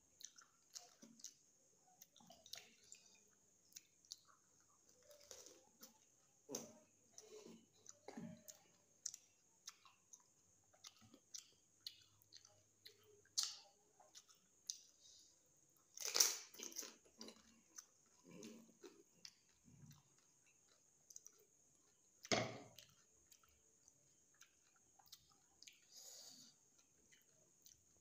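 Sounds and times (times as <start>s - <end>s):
crisp food crunching: 15.8s - 25.9s.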